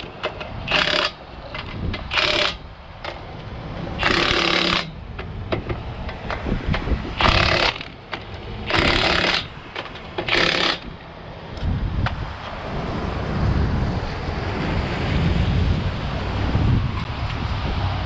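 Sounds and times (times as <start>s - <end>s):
power tool rattling: 0.7s - 2.6s, 4.0s - 4.9s, 7.2s - 11.0s.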